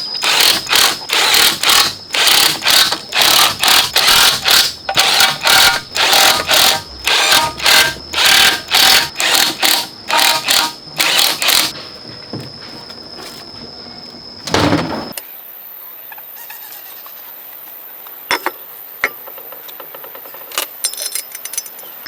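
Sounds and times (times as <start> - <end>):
rhythmic rasping strokes: 0.2 - 11.8.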